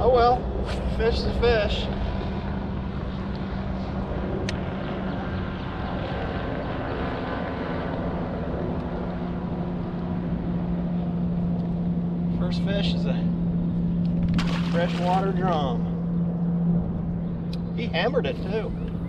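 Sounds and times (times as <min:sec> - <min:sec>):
boat motor humming: 0:00.0 - 0:19.0.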